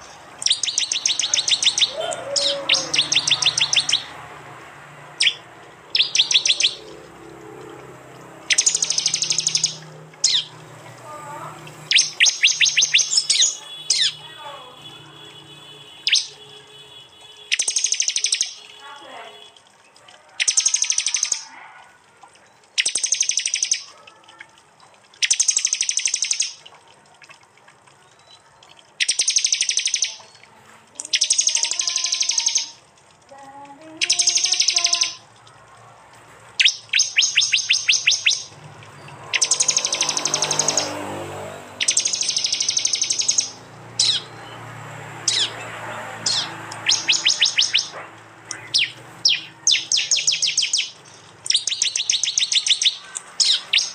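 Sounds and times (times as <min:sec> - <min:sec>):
bird chips: 0:00.0 - 0:10.9, 0:11.5 - 0:16.4, 0:17.2 - 0:21.6, 0:22.7 - 0:26.8, 0:28.0 - 0:32.9, 0:33.9 - 0:53.9
bird song rapid ticking notes: 0:00.0 - 0:21.5, 0:22.5 - 0:24.0, 0:24.8 - 0:26.8, 0:27.8 - 0:33.2, 0:33.8 - 0:53.9.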